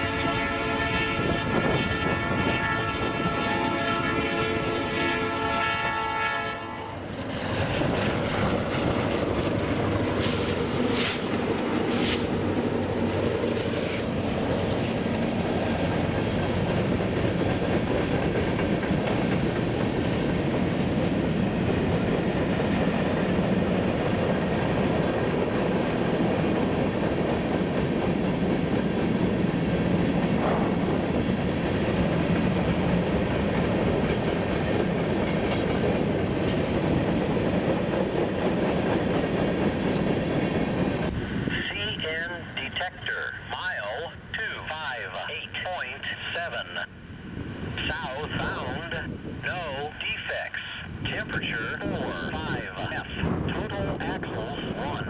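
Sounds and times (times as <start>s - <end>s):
freight train rumbling past: 0.0s - 44.6s, 46.3s - 50.0s, 50.8s - 55.0s
wheels clattering on rails: 7.1s - 41.2s.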